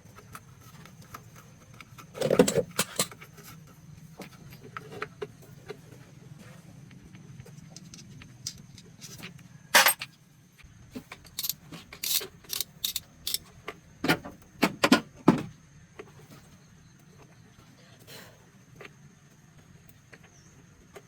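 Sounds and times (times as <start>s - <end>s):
metal tools clinking and clanking: 2.2s - 3.2s, 7.8s - 10.1s, 11.1s - 13.5s.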